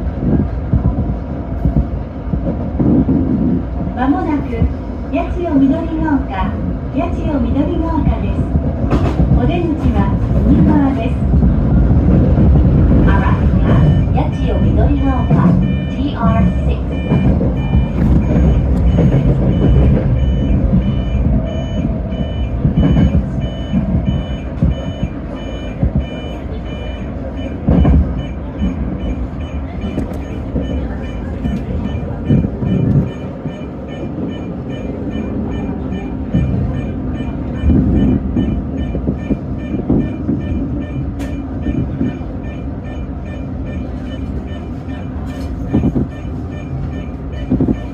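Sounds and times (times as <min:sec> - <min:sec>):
stopped train rumbling: 0:00.0 - 0:47.9
electronic signal beeps: 0:13.0 - 0:47.9.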